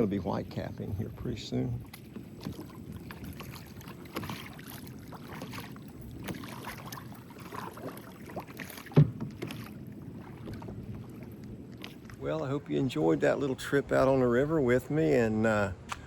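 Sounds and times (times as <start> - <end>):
water lapping against boat hull: 0.0 - 16.0
small knocks on boat: 1.8 - 4.5, 8.6 - 11.1.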